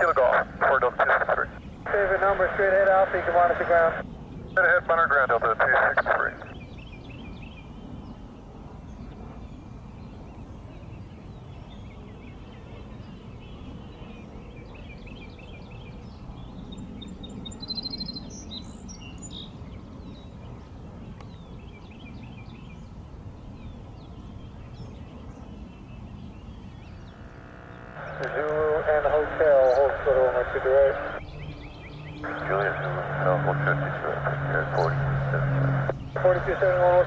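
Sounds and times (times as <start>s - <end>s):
small birds chirping: 0.0s - 8.0s, 25.6s - 37.0s
low background rumble: 27.0s - 37.0s.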